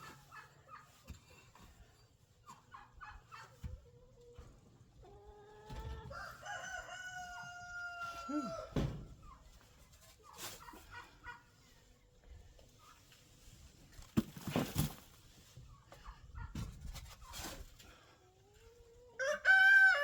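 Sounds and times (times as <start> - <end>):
chickens clucking: 0.0 - 14.1, 15.3 - 19.2
rooster crowing: 6.1 - 8.8, 19.2 - 20.0.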